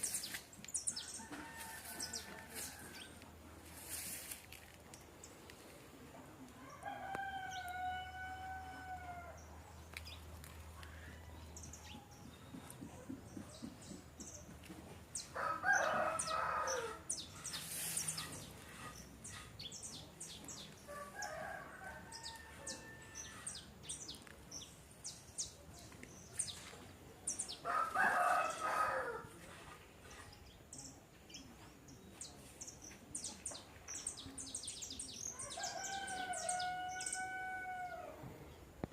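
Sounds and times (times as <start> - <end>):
small birds chirping: 0.0 - 5.8, 9.2 - 37.3
rooster crowing: 6.7 - 9.4, 15.4 - 17.0, 27.6 - 29.3, 35.4 - 38.2.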